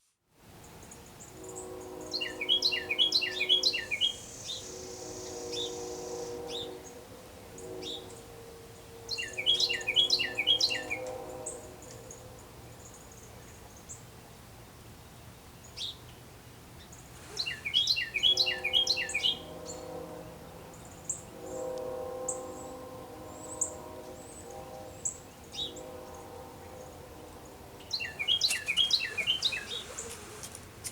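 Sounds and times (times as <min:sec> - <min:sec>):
train whistle blasts: 0:01.2 - 0:12.4, 0:17.2 - 0:30.5
wren singing: 0:02.1 - 0:04.9, 0:09.1 - 0:11.0, 0:16.8 - 0:19.8, 0:27.8 - 0:30.9.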